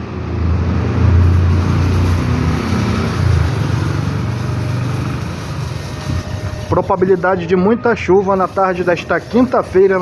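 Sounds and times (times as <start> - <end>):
vehicle engine running: 0.8 - 7.2.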